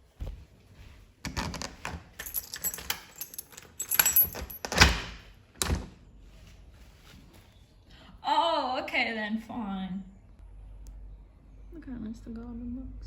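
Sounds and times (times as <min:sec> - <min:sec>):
keys jangling: 0:01.3 - 0:05.2.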